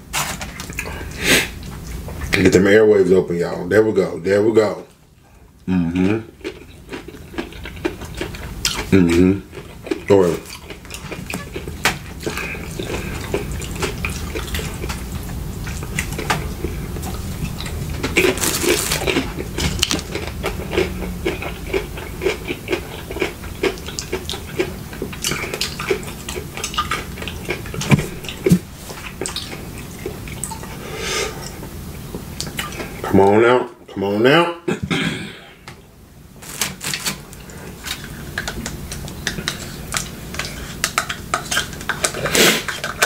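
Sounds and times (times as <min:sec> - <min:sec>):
wet chewing and mouth smacking: 0:06.0 - 0:30.7.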